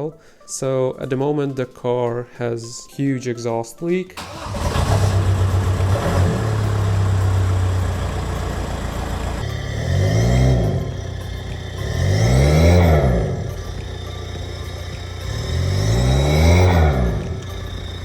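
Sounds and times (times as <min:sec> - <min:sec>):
diesel engine idling and revving: 0:04.2 - 0:18.0.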